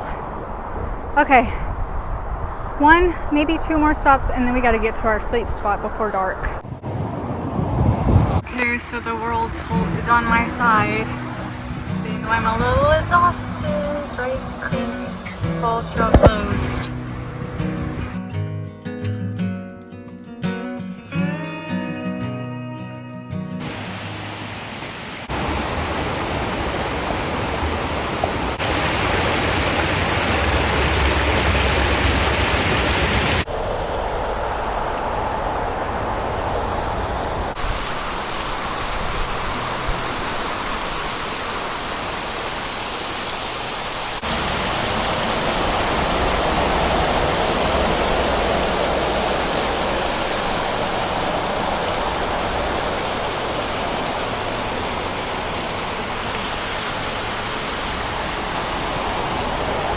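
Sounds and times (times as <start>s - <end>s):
waterfall rushing: 8.2s - 18.1s, 23.6s - 59.9s.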